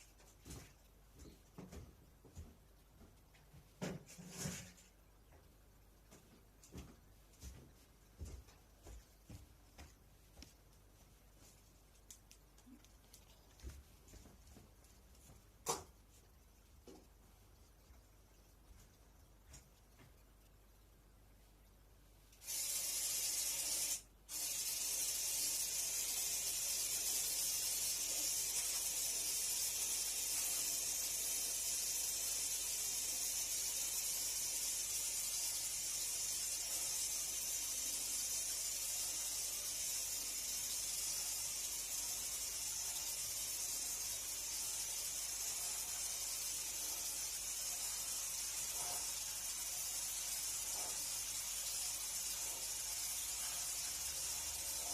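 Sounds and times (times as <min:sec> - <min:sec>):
cleaning spray hissing: 0:22.4 - 0:54.9.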